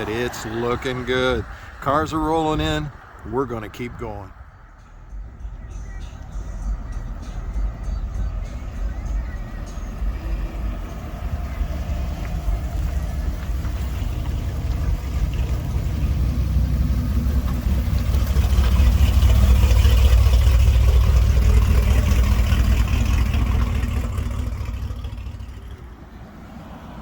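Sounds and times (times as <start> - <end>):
car engine rumbling: 0.0 - 27.0.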